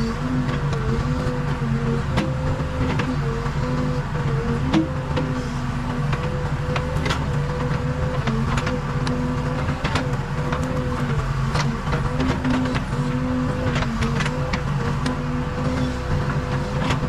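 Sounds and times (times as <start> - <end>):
diesel engine running: 0.0 - 17.0
sharp clicks and knocks: 5.9 - 17.0.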